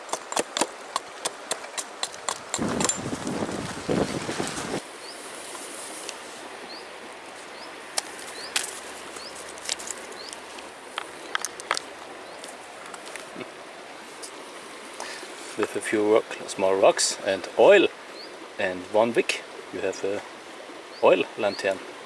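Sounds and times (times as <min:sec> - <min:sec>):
background hiss: 0:03.2 - 0:22.0
pebbles clicking on wood and stone: 0:08.0 - 0:13.3.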